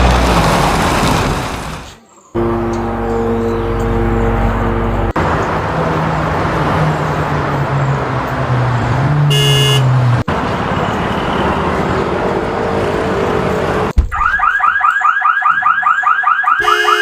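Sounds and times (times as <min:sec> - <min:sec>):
high-pitched horn beep: 0:02.4 - 0:05.1, 0:09.3 - 0:09.9, 0:16.6 - 0:17.0.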